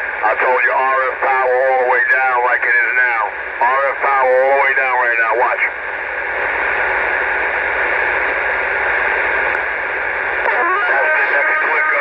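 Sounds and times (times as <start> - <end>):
radio static hiss: 0.0 - 12.0
faint voice over radio: 0.2 - 5.8, 10.4 - 12.0.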